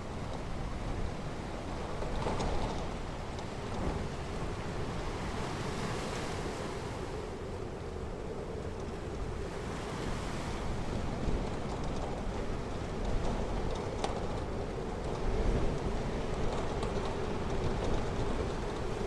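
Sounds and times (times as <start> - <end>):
wind on microphone: 0.0 - 19.0
waves washing onto beach: 3.2 - 19.0.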